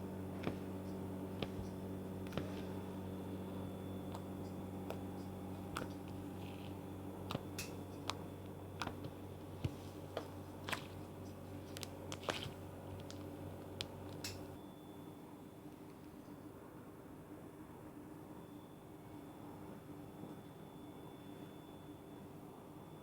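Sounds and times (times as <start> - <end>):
steady low hum: 0.0 - 18.7
slime squeezed by hand: 11.6 - 12.6.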